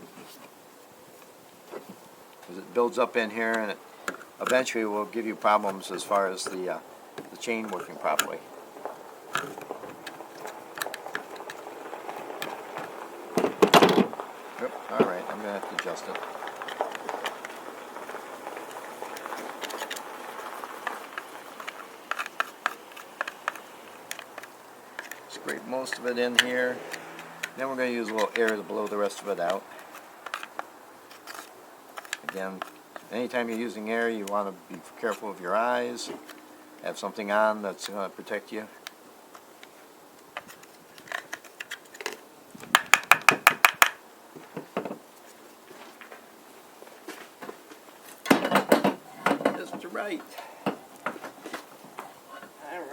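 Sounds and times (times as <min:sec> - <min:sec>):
tool scraping sawdust: 0:01.8 - 0:36.6
sharp taps on tools: 0:42.7 - 0:44.0.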